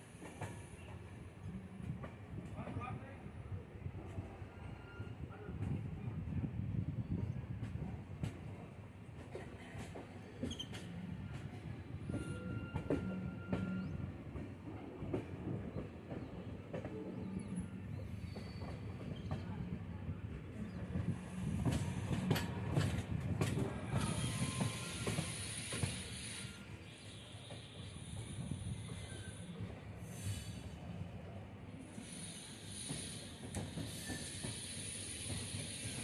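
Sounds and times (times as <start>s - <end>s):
train wheels rumbling on rail: 0.0s - 36.0s
high wheel squeal: 12.0s - 14.0s, 23.9s - 29.5s.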